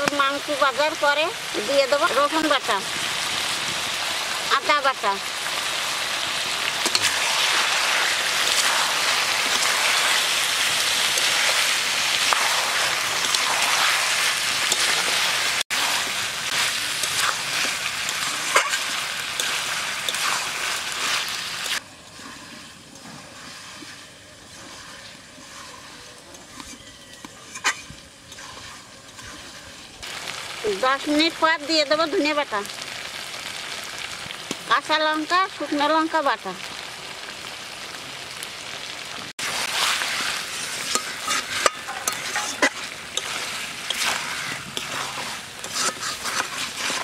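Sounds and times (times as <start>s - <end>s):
meat and onions sizzling in wok: 0.0s - 47.0s
spatula scraping pan: 6.8s - 29.9s, 39.4s - 47.0s.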